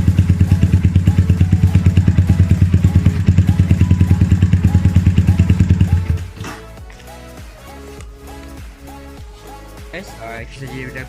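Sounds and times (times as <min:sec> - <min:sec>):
motorcycle engine idling: 0:00.0 - 0:06.8.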